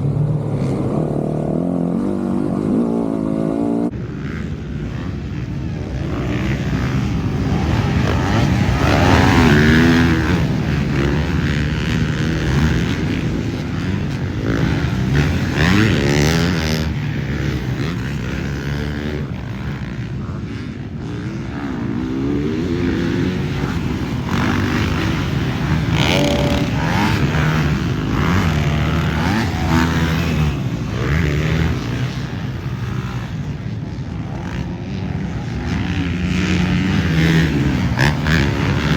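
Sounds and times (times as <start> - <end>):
dirt bike engines revving: 0.0 - 38.9.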